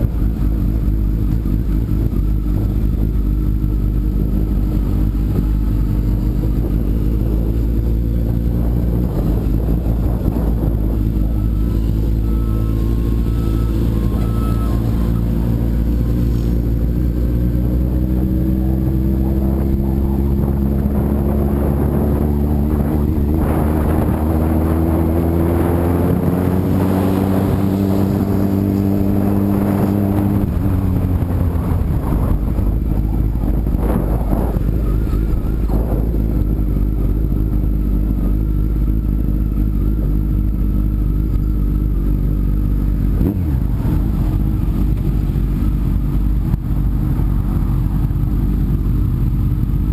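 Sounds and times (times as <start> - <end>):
motorcycle engine: 0.0 - 49.9.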